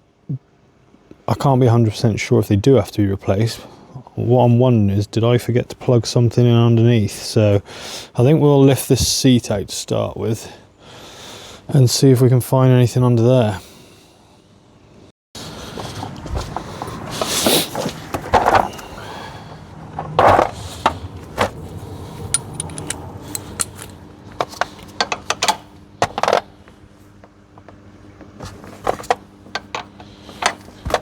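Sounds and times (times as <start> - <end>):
metal tools clinking and scraping: 22.2 - 25.6.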